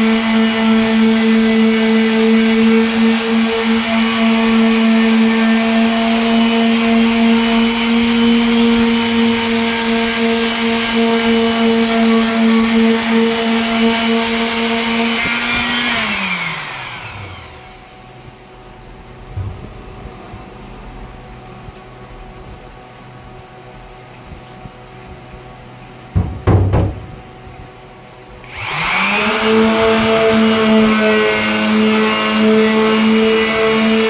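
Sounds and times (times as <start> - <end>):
power sander running: 0.0 - 18.3, 28.4 - 34.0
faint knock: 26.2 - 27.4.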